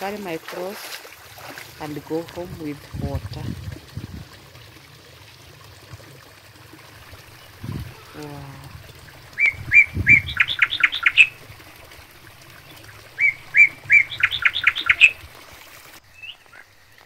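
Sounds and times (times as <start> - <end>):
songbird singing: 7.3 - 11.5, 12.4 - 15.3, 16.0 - 17.0.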